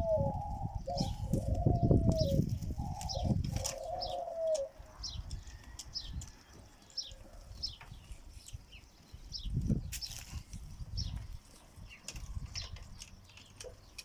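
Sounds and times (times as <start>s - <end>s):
pigeons cooing: 0.0s - 5.8s.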